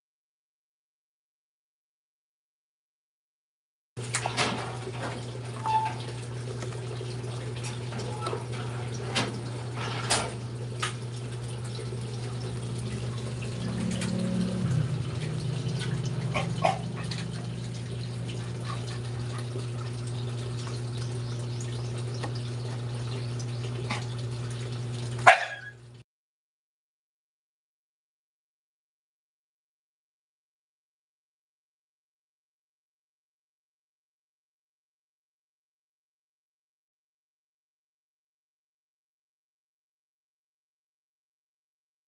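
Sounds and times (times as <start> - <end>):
low hum: 11.2 - 25.0
puppies crying: 15.8 - 17.6, 25.3 - 25.8.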